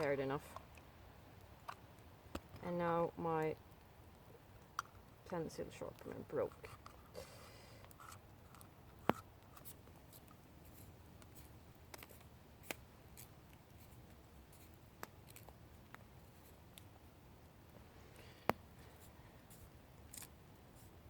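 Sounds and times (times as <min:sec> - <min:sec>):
knife shaving twigs: 0:06.0 - 0:16.9, 0:18.7 - 0:21.0.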